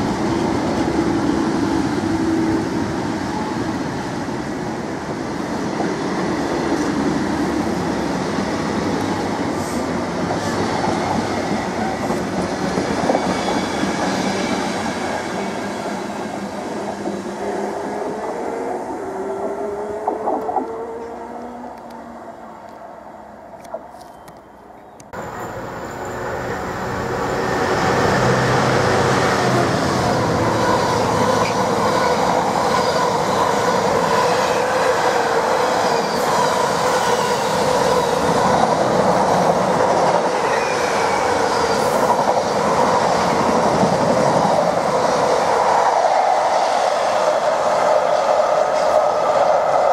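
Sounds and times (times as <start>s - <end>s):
ringing rail whine: 24.0s - 32.3s.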